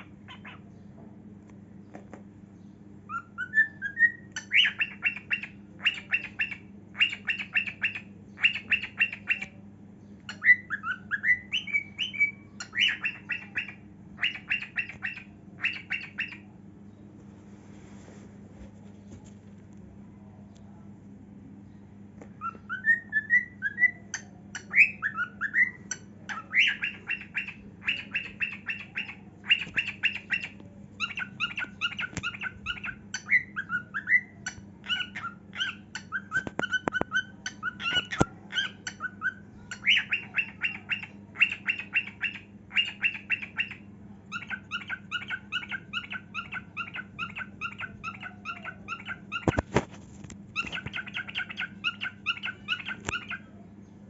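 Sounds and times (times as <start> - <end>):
cockatiel whistling and warbling: 3.1 - 9.6, 10.3 - 16.5, 22.4 - 49.9, 50.5 - 53.5.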